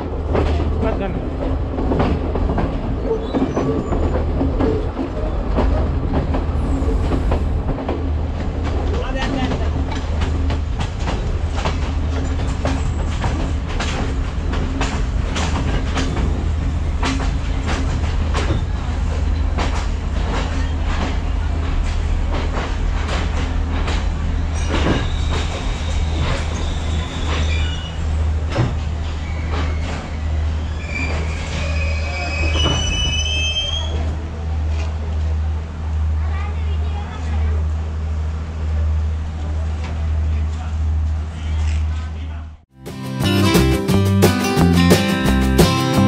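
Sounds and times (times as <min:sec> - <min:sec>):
train engine rumble: 0:00.0 - 0:46.0
wheels clicking over rail joints: 0:07.3 - 0:30.2.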